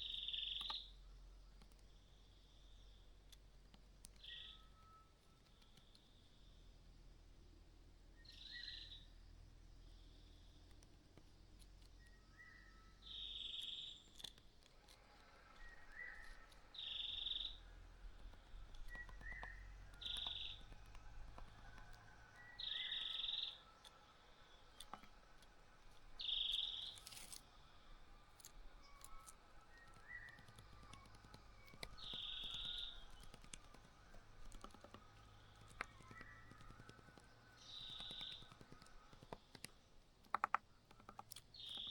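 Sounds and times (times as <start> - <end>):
small birds chirping: 0.0 - 41.9
faint clicks: 2.7 - 6.2, 13.5 - 41.9.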